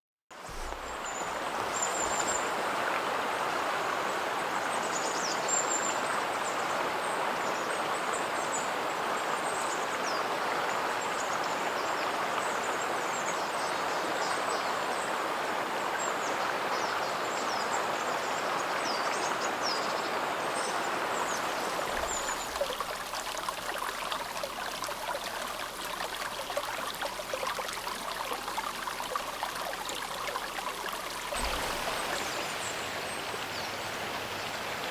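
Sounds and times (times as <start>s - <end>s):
river water babbling over stones: 21.3s - 33.0s.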